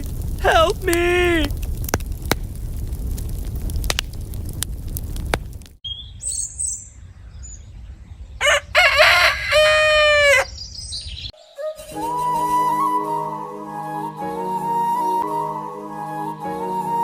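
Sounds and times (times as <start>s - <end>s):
small birds chirping: 5.8s - 8.4s, 10.4s - 11.4s
rooster crowing: 8.4s - 10.6s
flute music: 11.4s - 17.0s.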